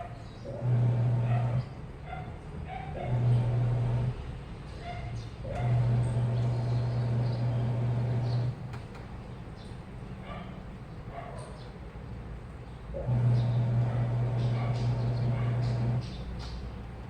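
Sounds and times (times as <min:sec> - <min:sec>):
washing machine motor humming: 0:00.5 - 0:01.6, 0:03.0 - 0:04.4, 0:05.4 - 0:11.1, 0:11.8 - 0:17.0.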